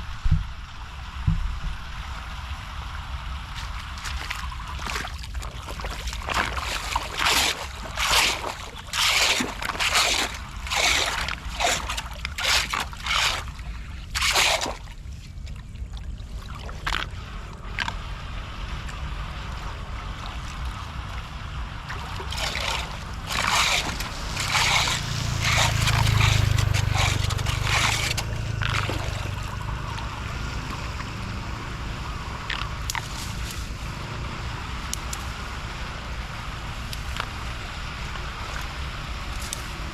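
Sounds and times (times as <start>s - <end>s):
low rumble: 0.0s - 8.0s, 15.1s - 39.9s
floodwater splashing: 0.1s - 39.9s
water running: 21.8s - 33.1s.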